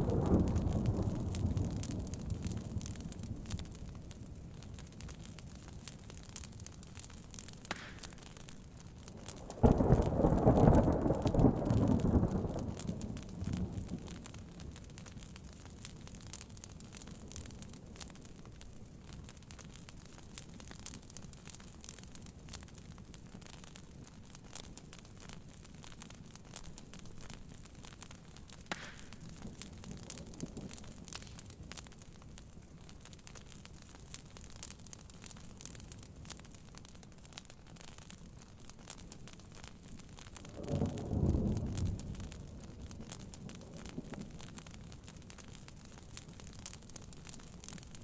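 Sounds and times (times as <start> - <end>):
thunder crack and rumble: 0.0 - 4.0, 9.4 - 14.4, 40.5 - 44.5
soft rain: 0.0 - 48.0
wood fire crackling: 0.0 - 48.0.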